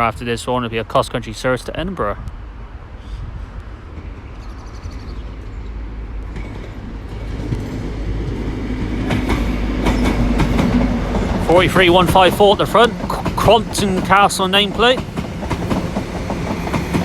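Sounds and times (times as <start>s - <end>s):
diesel train engine drone: 2.2s - 17.0s
train wheels clacking over rail joints: 6.2s - 17.0s.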